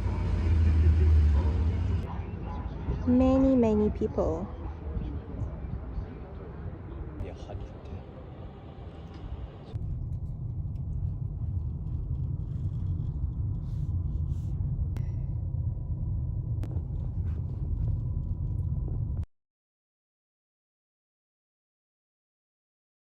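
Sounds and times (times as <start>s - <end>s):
wind buffeting microphone: 2.8s - 19.2s.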